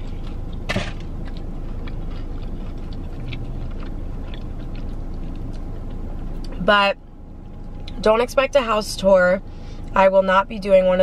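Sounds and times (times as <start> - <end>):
person chewing: 0.0 - 6.6
low hum in car cabin: 0.0 - 11.0.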